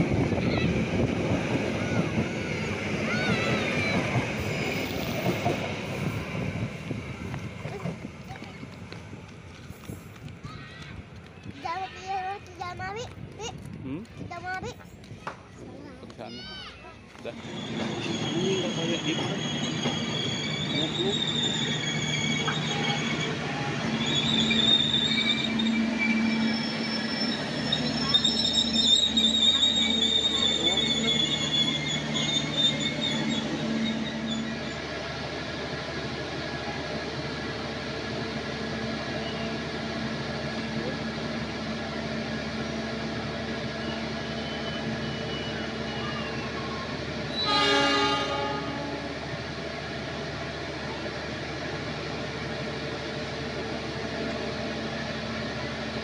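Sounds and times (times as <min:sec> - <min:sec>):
train wheels rumbling on rails: 0:00.0 - 0:56.0
high wheel squeal: 0:00.7 - 0:06.6, 0:17.3 - 0:35.0, 0:43.7 - 0:49.3
train horn blast: 0:47.4 - 0:49.3.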